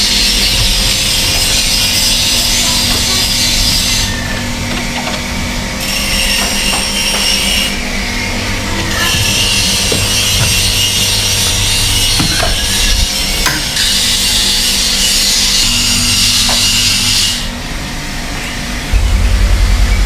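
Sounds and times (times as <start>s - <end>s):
steady motor hum: 0.0s - 20.0s.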